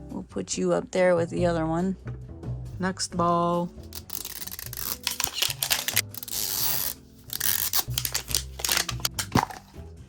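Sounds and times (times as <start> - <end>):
plastic wrapping ripping: 3.9 - 9.6
plastic wrapping crinkling: 4.0 - 9.6.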